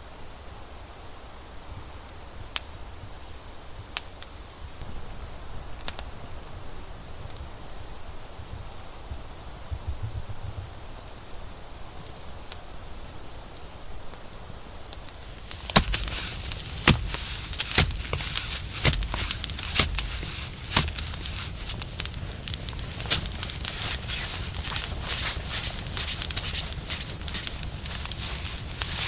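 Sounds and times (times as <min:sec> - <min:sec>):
dry wood crackling and snapping: 0:14.9 - 0:29.0.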